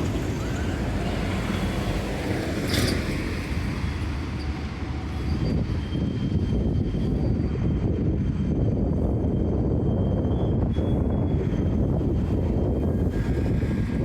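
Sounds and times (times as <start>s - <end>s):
tram rumbling by: 0.0s - 14.0s
tram screech: 0.0s - 14.0s.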